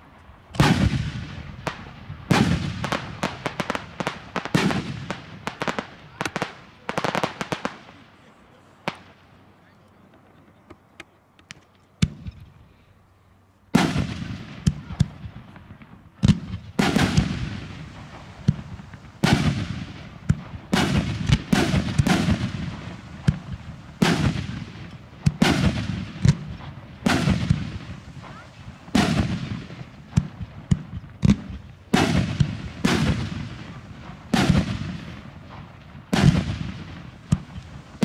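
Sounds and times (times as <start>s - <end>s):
fireworks crackling: 0.0s - 12.6s, 13.6s - 38.0s
firework shells bursting with echo: 13.8s - 38.0s.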